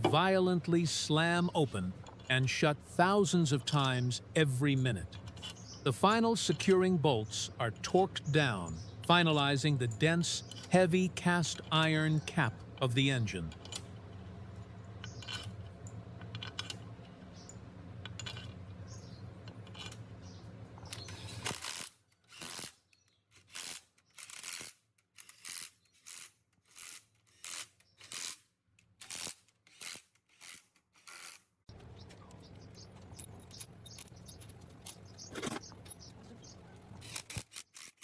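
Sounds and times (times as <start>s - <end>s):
low steady hum: 0.0s - 21.4s.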